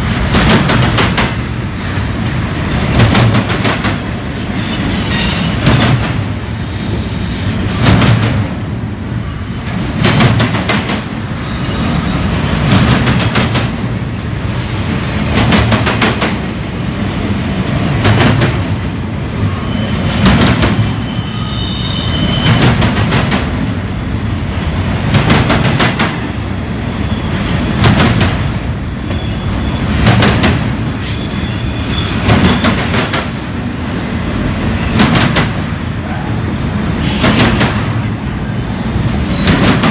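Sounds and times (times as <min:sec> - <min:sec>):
train wheels clattering on track: 0:00.0 - 0:23.9, 0:24.5 - 0:39.9
wheel squeals: 0:06.6 - 0:10.7.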